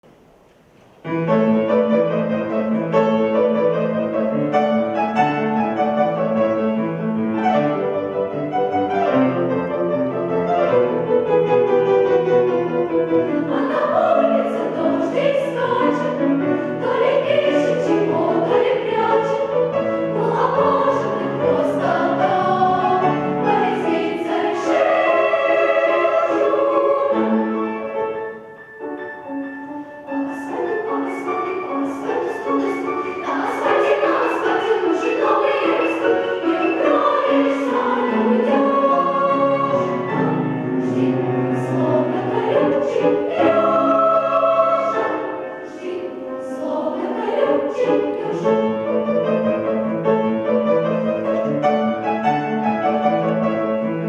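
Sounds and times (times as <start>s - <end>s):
piano accompaniment: 0.0s - 54.0s
choir singing: 1.0s - 54.0s.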